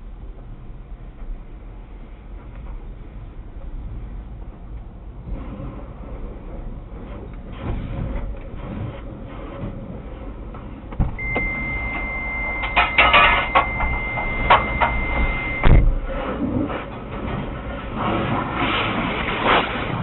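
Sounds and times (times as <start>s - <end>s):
machinery rumbling with knocks: 0.3s - 20.0s
high electronic beep: 11.2s - 15.8s.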